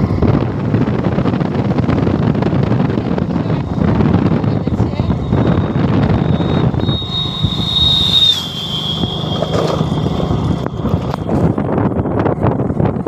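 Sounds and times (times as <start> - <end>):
wind noise on microphone: 0.0 - 13.0
high thin whine: 1.4 - 13.0.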